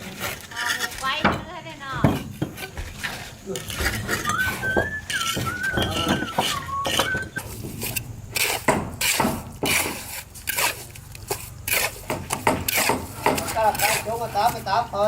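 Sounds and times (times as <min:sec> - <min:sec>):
objects knocking and clattering: 0:01.1 - 0:08.0
thin wavering high tone: 0:04.1 - 0:07.4.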